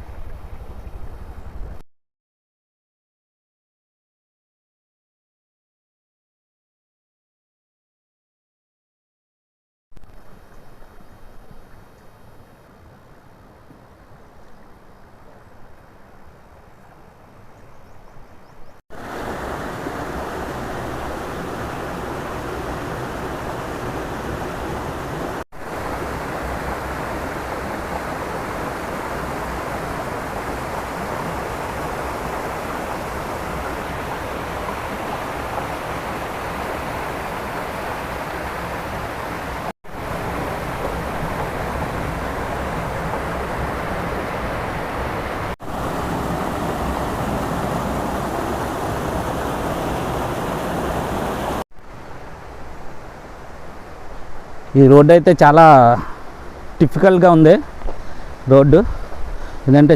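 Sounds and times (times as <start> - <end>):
wind on microphone: 19.0 - 51.6, 57.6 - 59.7
vehicle and road noise: 19.0 - 59.9.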